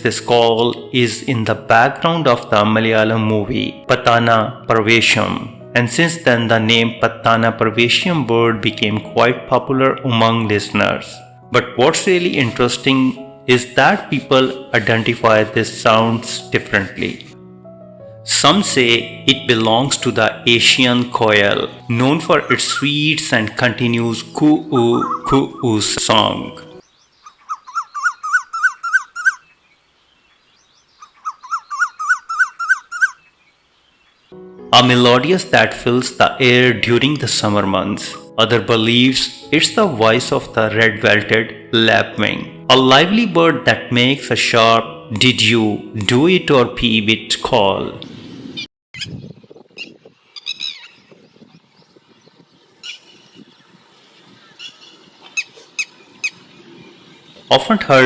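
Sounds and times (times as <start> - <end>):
faint outdoor background: 0.0 - 58.0
lapwing calling sharp notes: 21.5 - 34.2, 49.8 - 51.1, 54.3 - 58.0
bird whistling short notes: 24.8 - 25.6.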